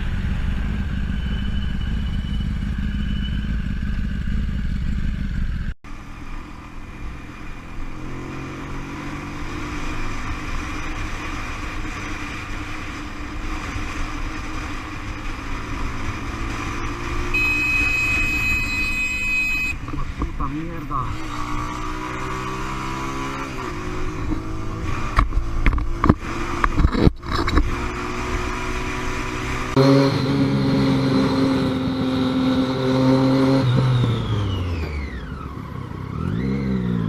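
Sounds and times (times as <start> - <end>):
motorcycle engine running: 0.0 - 37.0
wind and road noise: 0.0 - 37.0
steady high tone: 17.2 - 20.9.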